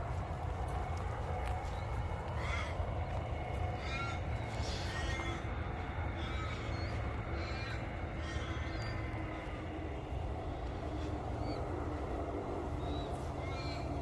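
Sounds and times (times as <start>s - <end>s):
steady low rumble: 0.0s - 14.0s
wild birds calling: 0.0s - 14.0s
crow cawing: 2.3s - 9.8s, 12.9s - 14.0s.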